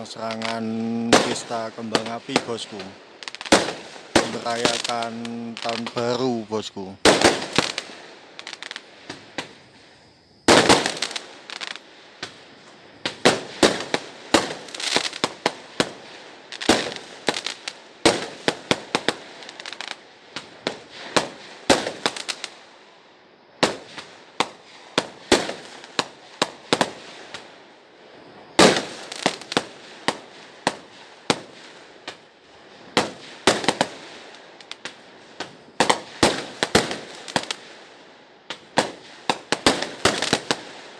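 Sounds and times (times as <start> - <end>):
firecrackers banging: 0.0 - 9.7, 10.5 - 12.4, 13.0 - 22.4, 28.6 - 37.7, 38.5 - 40.8
faint crackle: 0.0 - 40.9.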